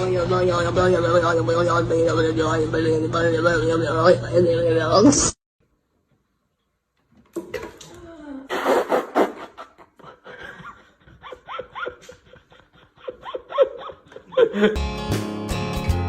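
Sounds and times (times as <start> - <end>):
person laughing: 8.5 - 14.8.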